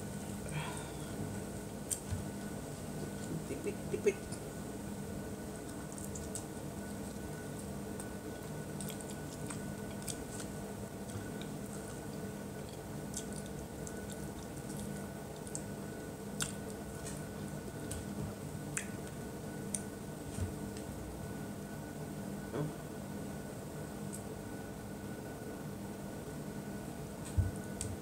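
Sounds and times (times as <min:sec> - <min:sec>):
steady low hum: 0:00.0 - 0:28.0
person chewing and biting: 0:05.6 - 0:19.9.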